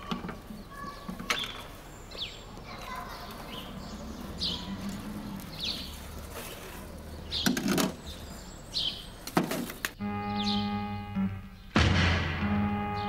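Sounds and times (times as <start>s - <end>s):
bird chirping: 0.0s - 13.0s
sharp knocks: 11.7s - 13.0s.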